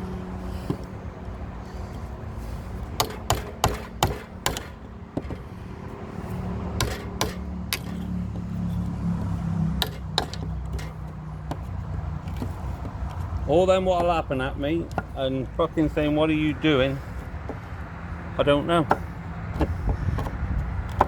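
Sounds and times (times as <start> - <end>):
low engine hum: 0.0 - 21.0
hammer striking timber: 3.0 - 5.5, 6.8 - 8.1, 9.8 - 11.7, 13.8 - 15.2, 18.6 - 21.0.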